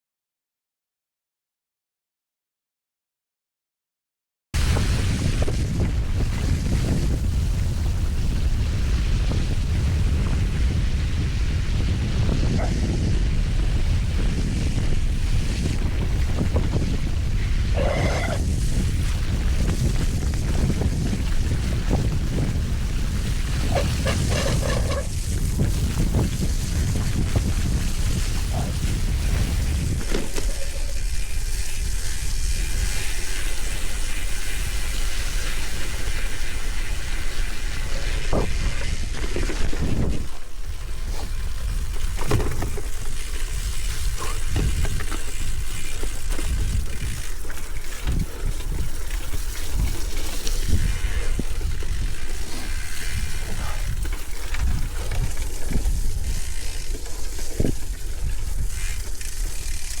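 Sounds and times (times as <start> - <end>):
bike rattling over bumps: 4.6 - 60.0
wind on microphone: 4.6 - 60.0
tyres on gravel: 13.1 - 60.0.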